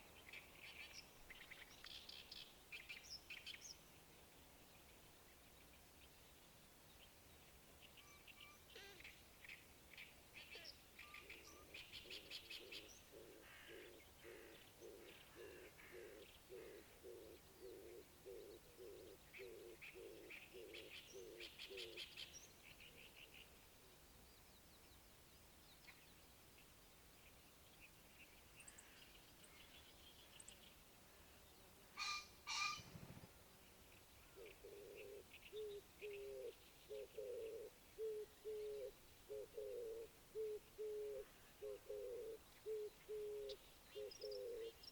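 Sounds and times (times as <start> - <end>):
faint birdsong chirps and trills: 0.0 - 44.9
dove cooing: 11.2 - 22.1, 34.4 - 44.8
low repeated bird call: 31.2 - 33.3, 33.9 - 44.9.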